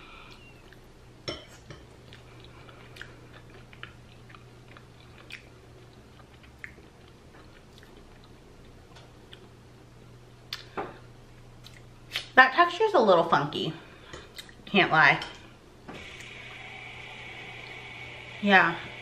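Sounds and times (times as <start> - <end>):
person chewing soft food: 1.7 - 10.8, 11.4 - 12.2
wet mouth clicks: 11.6 - 12.3
steady low hum: 13.3 - 19.0.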